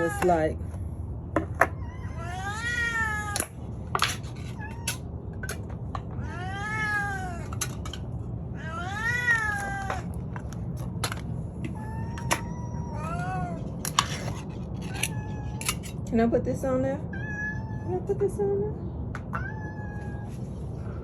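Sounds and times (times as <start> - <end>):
cat meowing loudly: 1.8 - 3.6, 6.2 - 7.6, 8.5 - 10.1, 11.7 - 15.9, 17.1 - 17.9, 19.3 - 20.4.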